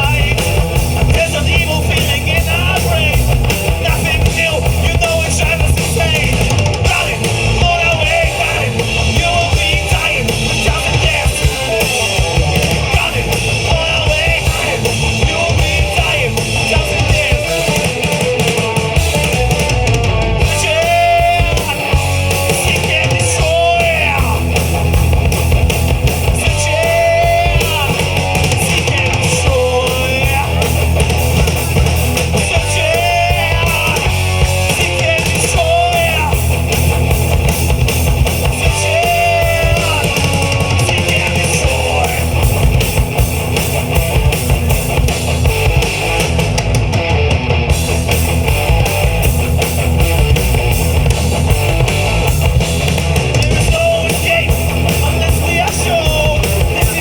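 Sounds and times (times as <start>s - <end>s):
rock band playing live: 0.0s - 57.0s
person singing: 20.0s - 24.6s, 26.2s - 31.0s, 31.6s - 36.5s, 38.4s - 42.5s, 53.3s - 57.0s.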